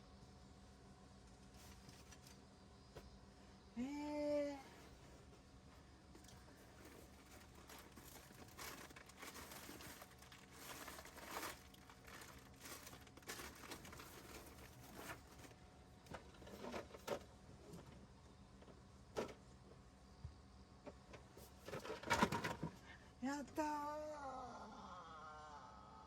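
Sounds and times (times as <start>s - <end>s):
bag crinkling and rustling: 6.6s - 15.6s.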